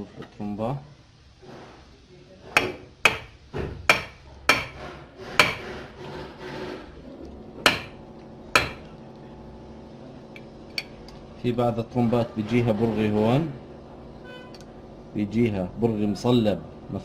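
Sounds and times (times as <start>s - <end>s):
sharp metal knocks: 2.6s - 5.9s, 7.6s - 8.9s.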